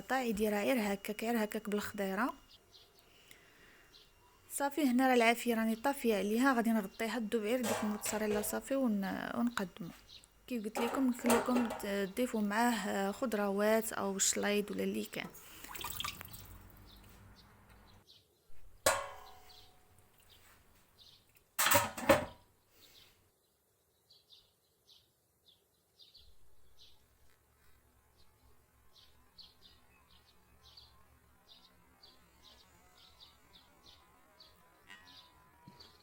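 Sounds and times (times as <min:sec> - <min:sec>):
kitchenware clanking: 0:07.5 - 0:08.8, 0:10.7 - 0:12.2, 0:18.9 - 0:19.6, 0:21.6 - 0:22.4.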